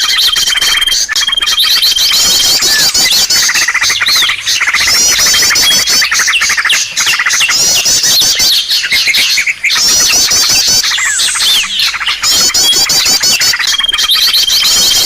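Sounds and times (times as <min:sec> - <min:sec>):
small birds calling: 0:00.0 - 0:15.0.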